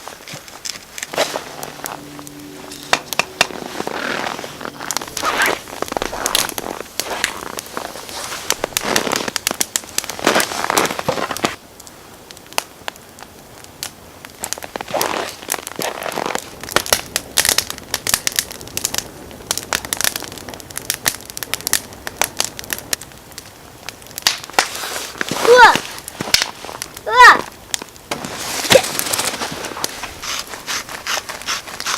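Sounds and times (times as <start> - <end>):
rustling noise: 0.0 - 11.6, 14.5 - 16.7, 24.5 - 31.9
campfire crackling and popping: 0.0 - 31.9.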